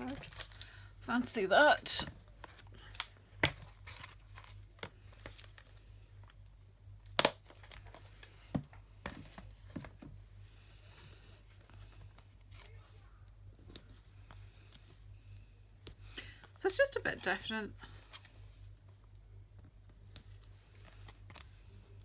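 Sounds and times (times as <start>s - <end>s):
paper and plastic crinkling: 0.0s - 10.2s.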